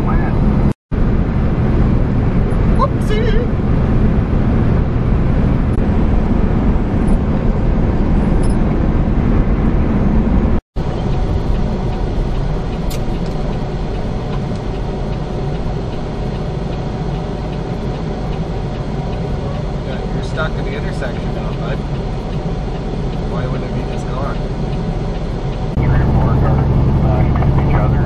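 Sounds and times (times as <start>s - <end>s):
truck engine and road noise: 0.0s - 28.0s.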